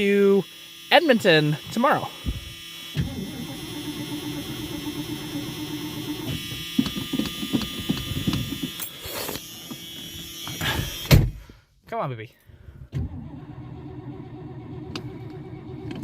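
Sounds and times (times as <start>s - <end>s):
dashboard warning buzzer: 0.0s - 11.1s.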